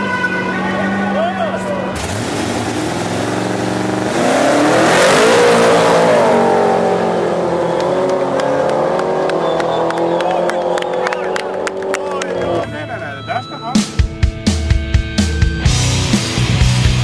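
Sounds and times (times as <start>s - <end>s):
car engine accelerating: 0.0s - 12.9s.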